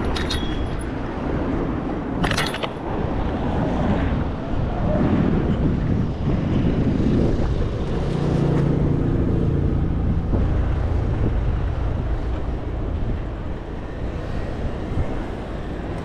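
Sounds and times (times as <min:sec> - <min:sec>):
wind on microphone: 0:00.0 - 0:16.0
vehicle engine passing: 0:07.6 - 0:14.8.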